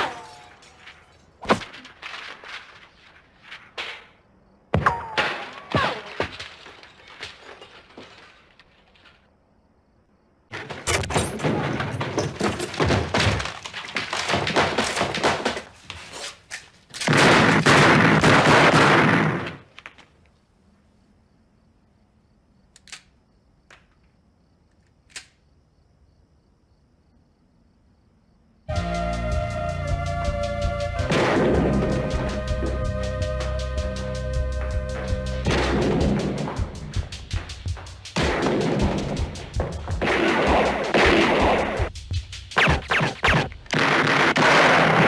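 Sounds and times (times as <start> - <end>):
crashing: 0.0 - 4.2, 5.2 - 9.3, 10.5 - 16.4
silenced gunfire and bullet impacts: 10.5 - 15.8, 16.9 - 20.1, 38.1 - 41.9, 42.6 - 45.0.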